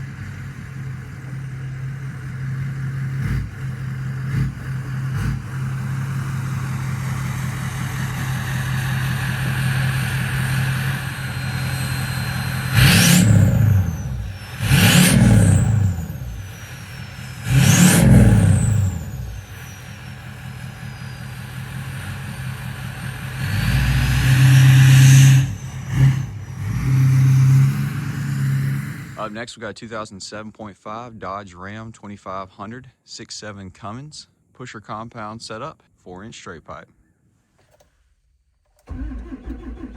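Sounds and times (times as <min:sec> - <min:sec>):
diesel engine idling rough: 0:00.0 - 0:29.4
diesel engine revving: 0:00.0 - 0:29.4, 0:38.8 - 0:39.9
high turbo whistle: 0:07.4 - 0:29.2.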